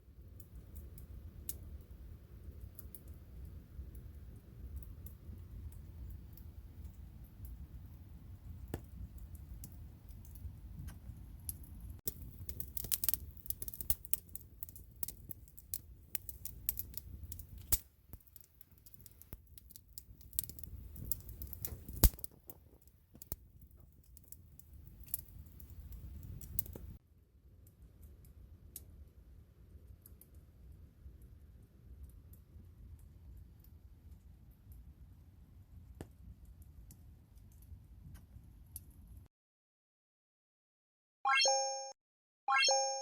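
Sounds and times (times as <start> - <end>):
campfire crackling and popping: 0.1 - 27.0
flames rumbling: 0.1 - 27.0.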